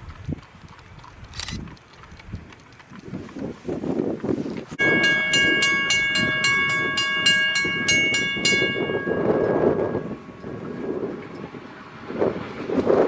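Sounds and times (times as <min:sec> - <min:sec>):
grade crossing bell ringing: 0:04.8 - 0:13.0.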